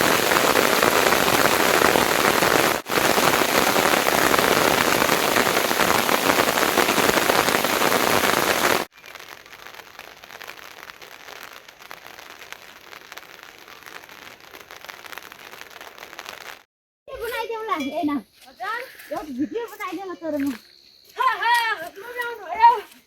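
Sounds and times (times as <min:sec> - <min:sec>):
heavy rain hissing: 0:00.0 - 0:16.7
faint rain patter: 0:00.0 - 0:23.0.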